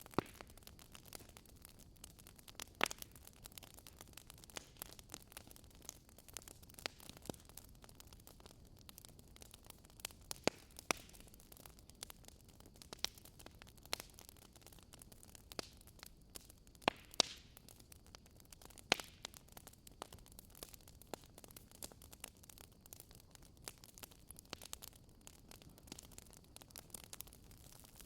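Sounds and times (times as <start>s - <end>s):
faint steady hiss: 0.0s - 28.0s
wood fire crackling and popping: 0.0s - 28.0s.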